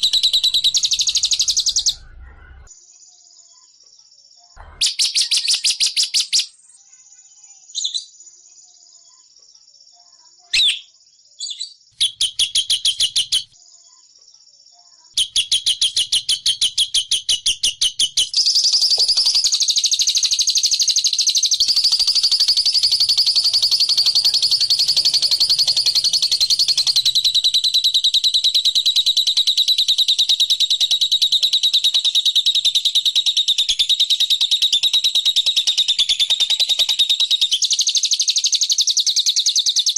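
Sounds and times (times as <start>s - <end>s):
lovebird chattering trills: 0.0s - 2.6s, 15.2s - 38.5s.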